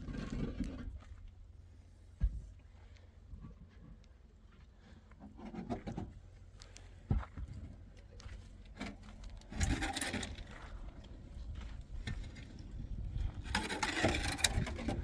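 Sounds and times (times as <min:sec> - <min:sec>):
rubbing and scraping handling: 0:13.4 - 0:15.0.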